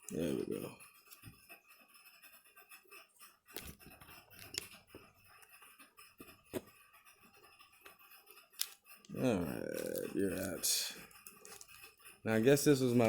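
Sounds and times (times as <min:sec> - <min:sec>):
small tools clicking and tapping: 0:00.0 - 0:13.0.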